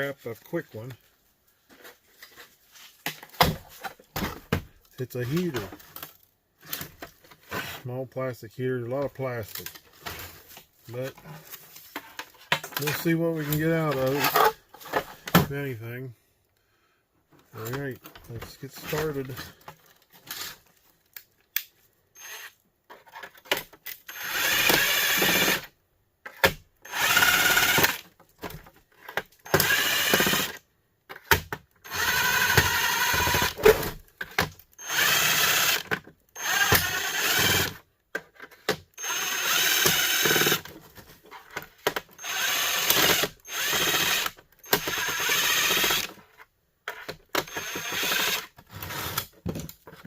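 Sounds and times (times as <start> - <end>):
cordless drill running: 22.2 - 22.6, 24.1 - 25.7, 26.9 - 28.0, 29.5 - 30.6, 31.8 - 33.6, 34.8 - 37.8, 39.0 - 40.7, 42.2 - 46.2, 47.4 - 48.5.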